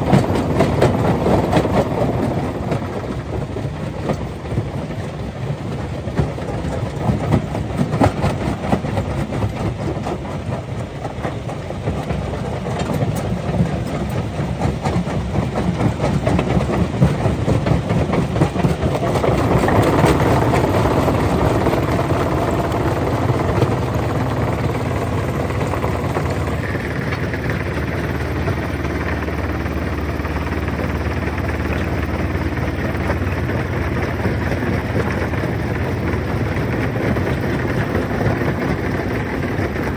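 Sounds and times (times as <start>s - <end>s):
rock crusher rumbling: 17.8s - 39.9s.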